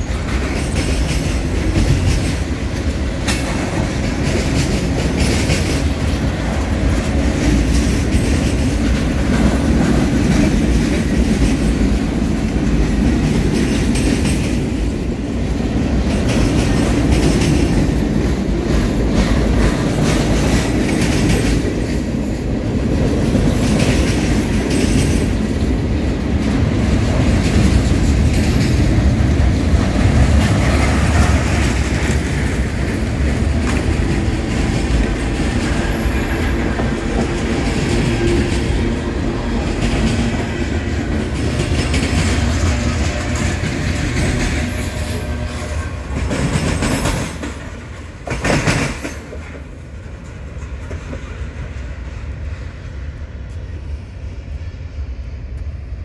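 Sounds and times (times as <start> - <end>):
wheels clacking over rail joints: 0.0 - 52.4
steel wheels rumbling on rails: 0.0 - 56.0.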